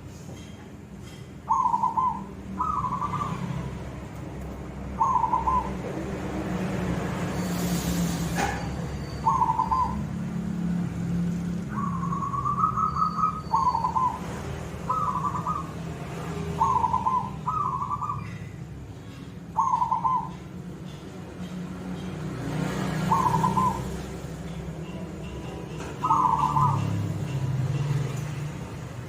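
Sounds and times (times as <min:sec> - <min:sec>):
dove cooing in trilled coos: 0:01.5 - 0:03.4, 0:05.0 - 0:05.9, 0:09.2 - 0:10.0, 0:14.9 - 0:15.7, 0:16.6 - 0:18.3, 0:19.5 - 0:20.4, 0:23.1 - 0:24.1, 0:26.0 - 0:26.8.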